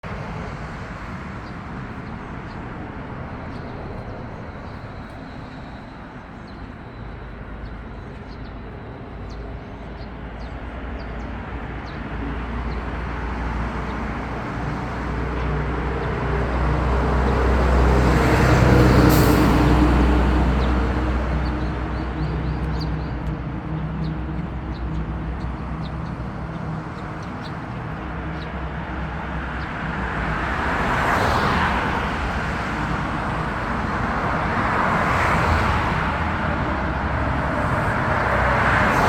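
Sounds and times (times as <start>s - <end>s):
road traffic rumble: 0.0s - 39.0s
large vehicle passing: 11.9s - 39.0s.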